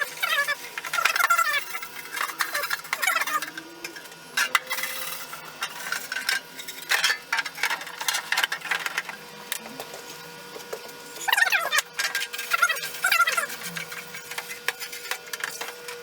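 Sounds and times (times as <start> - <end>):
metal parts clinking and scraping: 0.2 - 9.2.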